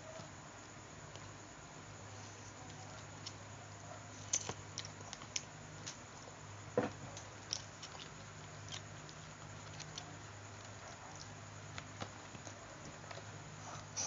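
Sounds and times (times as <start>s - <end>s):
low steady hum: 0.0s - 14.0s
chewing and mouth noises: 7.4s - 14.0s.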